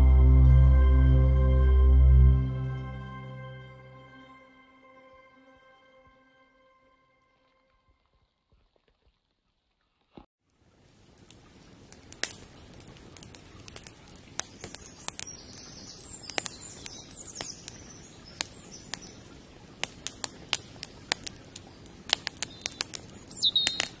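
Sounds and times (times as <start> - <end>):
low steady hiss: 10.4 - 24.0
sharp crackling clicks: 11.2 - 19.2, 19.8 - 24.0
high bird chirps: 14.6 - 19.2, 22.4 - 24.0.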